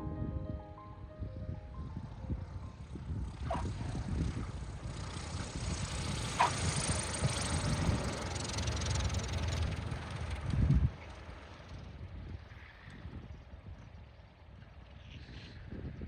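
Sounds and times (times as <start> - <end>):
airplane engine running: 1.2 - 12.9.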